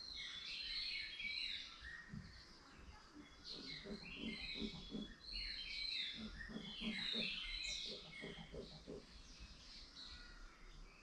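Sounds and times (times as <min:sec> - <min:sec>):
small birds chirping: 0:00.0 - 0:11.0
low pulsing bird calls: 0:03.3 - 0:10.9.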